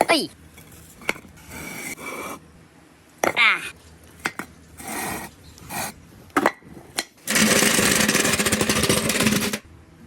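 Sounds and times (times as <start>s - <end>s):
hard pieces rattling clatter: 7.3s - 9.6s.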